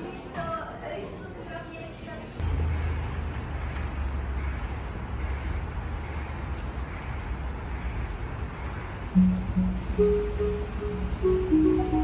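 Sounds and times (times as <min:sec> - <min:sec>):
road traffic rumble: 0:02.4 - 0:12.0.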